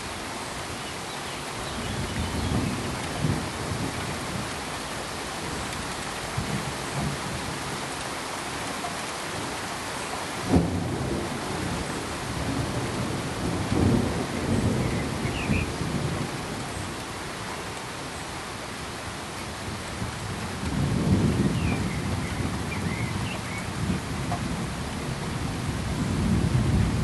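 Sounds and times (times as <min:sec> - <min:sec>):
steady rain hiss: 0:00.0 - 0:27.0
thunder rumbling: 0:10.4 - 0:16.8, 0:19.6 - 0:27.0.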